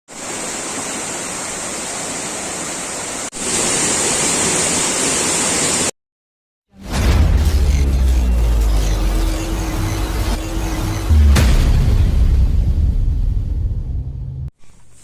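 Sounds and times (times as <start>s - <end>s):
waterfall roaring: 0.2s - 5.9s.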